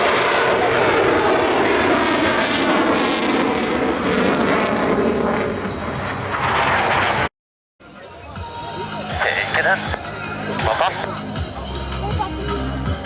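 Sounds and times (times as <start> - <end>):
jet aircraft roaring past: 0.0 - 7.3.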